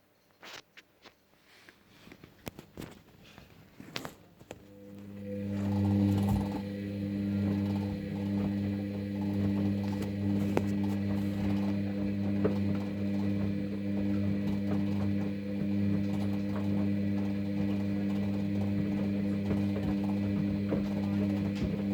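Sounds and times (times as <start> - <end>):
washing machine motor hum: 4.5 - 21.9.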